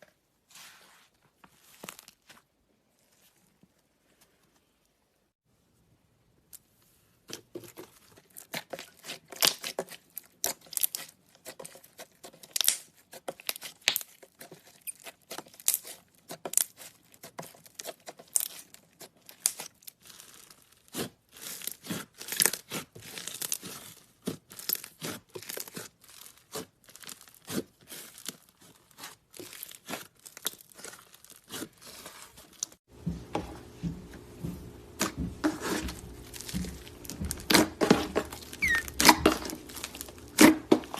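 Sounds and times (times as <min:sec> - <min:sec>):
sticky slime crackles and pops: 0:12.4 - 0:14.3.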